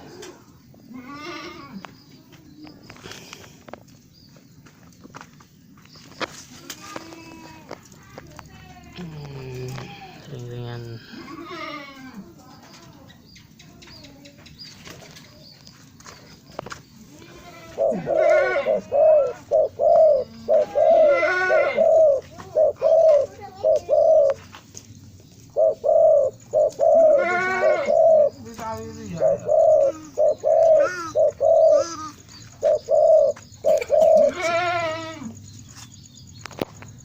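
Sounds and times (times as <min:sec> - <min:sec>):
dove cooing: 0:00.0 - 0:02.0, 0:17.1 - 0:24.5, 0:25.5 - 0:35.4.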